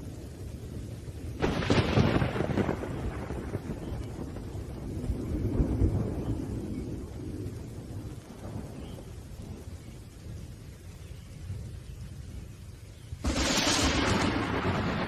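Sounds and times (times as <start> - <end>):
low rumble of thunder: 0.0 - 15.0
loud thunderclap: 1.4 - 8.8, 13.2 - 15.0.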